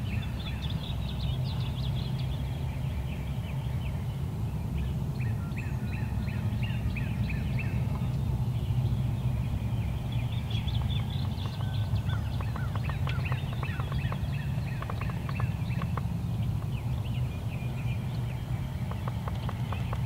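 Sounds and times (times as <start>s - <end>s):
steady low rumble: 0.0s - 20.0s
birds chirping and whistling: 4.8s - 20.0s.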